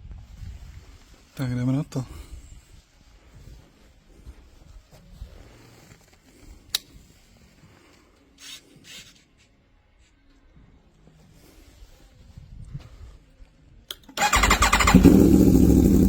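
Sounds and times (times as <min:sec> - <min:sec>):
rustling scrapes: 0:02.8 - 0:06.6.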